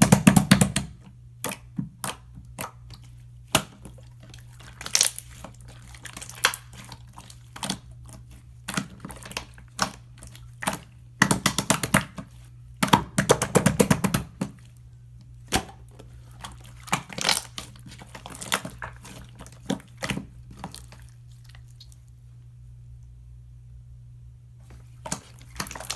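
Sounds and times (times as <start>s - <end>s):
faint steady hum: 0.0s - 25.9s
materials clicking and crinkling: 15.5s - 22.1s, 24.7s - 25.9s.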